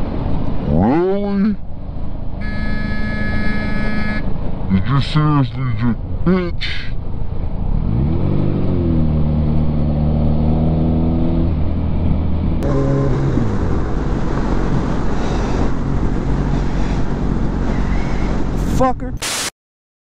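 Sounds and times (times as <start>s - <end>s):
motorcycle engine revving: 7.7s - 18.6s.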